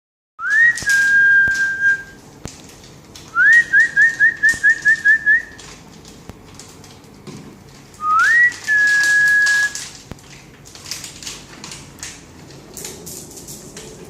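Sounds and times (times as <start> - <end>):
person whistling: 0.4 - 2.2, 3.4 - 5.6, 8.0 - 9.8.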